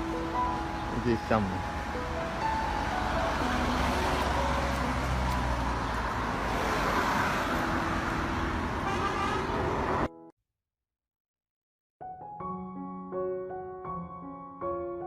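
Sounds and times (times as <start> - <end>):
passing cars: 0.0 - 10.2.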